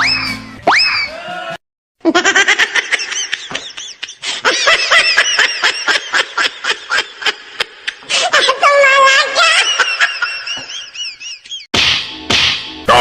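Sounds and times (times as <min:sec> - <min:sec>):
high-pitched laugh: 0:02.0 - 0:11.7.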